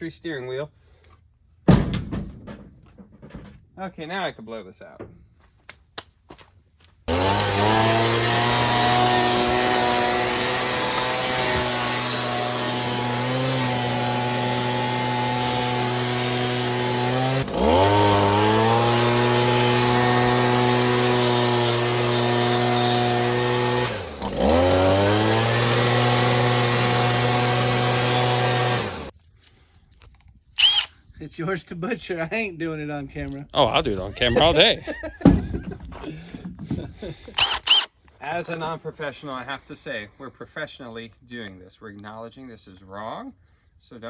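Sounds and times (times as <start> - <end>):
leaf blower running: 7.1 - 29.1.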